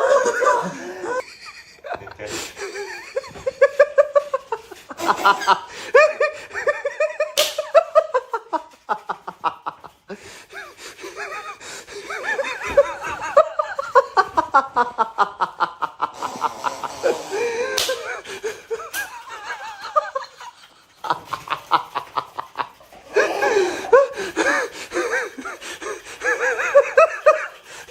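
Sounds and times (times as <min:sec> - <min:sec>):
people laughing and snickering: 0:00.0 - 0:27.9
sharp smacks: 0:07.4 - 0:07.8, 0:17.7 - 0:18.1.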